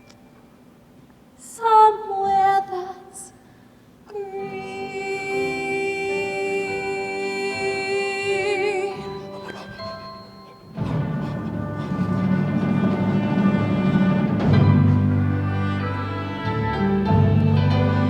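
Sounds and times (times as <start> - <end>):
woman singing: 1.4 - 3.4, 4.1 - 9.3
soft accompaniment: 4.1 - 18.0.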